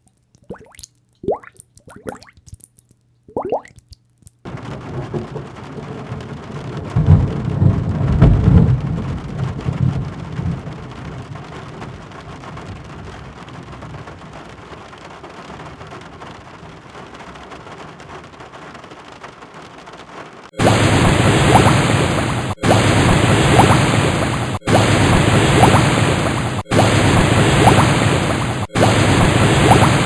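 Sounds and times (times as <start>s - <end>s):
steady rain: 4.4s - 30.0s
rolling thunder: 4.5s - 11.4s, 20.6s - 30.0s.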